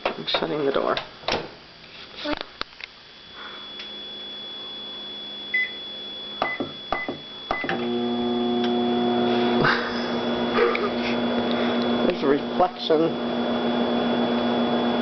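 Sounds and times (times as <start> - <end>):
microwave humming: 3.1 - 15.0
microwave keypad beeping: 5.4 - 7.8.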